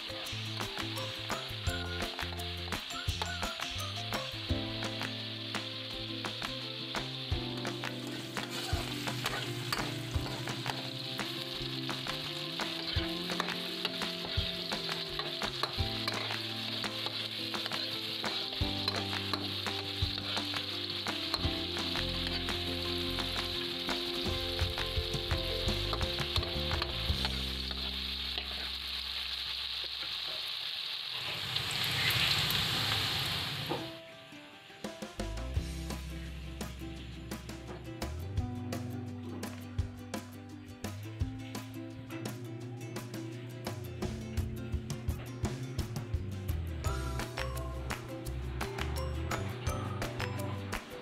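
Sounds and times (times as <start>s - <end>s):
tofu sizzling in oil: 0.0s - 34.0s
metal spatula scraping wok: 8.0s - 22.6s.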